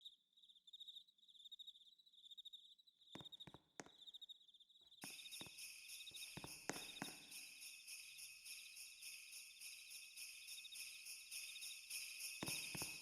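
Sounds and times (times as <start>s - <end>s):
faint cricket chirping: 0.0s - 13.0s
sleigh bells jingling: 5.0s - 13.0s.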